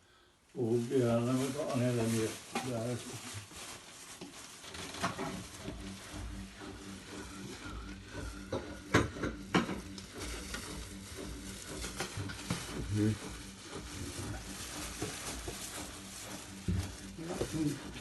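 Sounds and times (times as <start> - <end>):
objects rustling: 0.6 - 18.0
steady low hum: 4.8 - 18.0.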